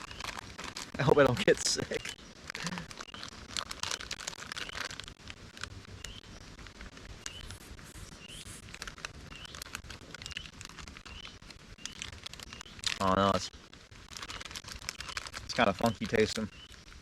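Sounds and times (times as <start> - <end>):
crinkling handling rustles: 0.0 - 17.0
bird chirping: 1.6 - 2.4, 6.0 - 6.5, 7.2 - 8.6, 9.2 - 13.2, 15.0 - 16.9.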